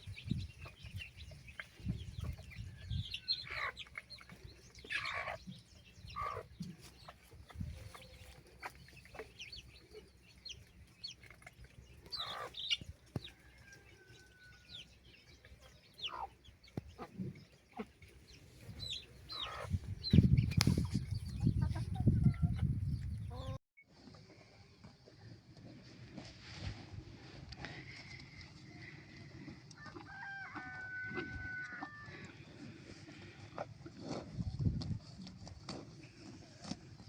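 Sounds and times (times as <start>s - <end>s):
chickens clucking: 0.0s - 23.6s.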